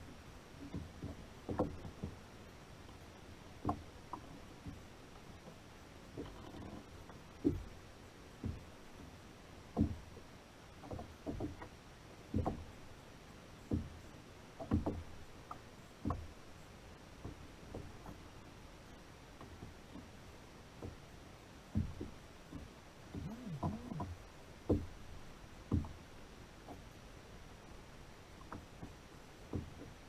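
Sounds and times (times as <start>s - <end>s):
dull knocks on kayak hull: 0.6s - 2.2s, 3.6s - 4.8s, 7.4s - 7.7s, 8.4s - 8.7s, 9.7s - 10.1s, 10.8s - 11.7s, 12.3s - 12.7s, 13.7s - 14.0s, 14.6s - 16.4s, 21.7s - 25.0s, 25.7s - 26.0s, 28.5s - 30.0s.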